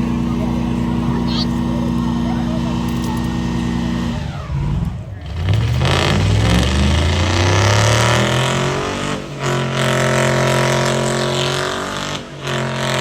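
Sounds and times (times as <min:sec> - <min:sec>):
car engine revving hard: 0:03.5 - 0:13.0.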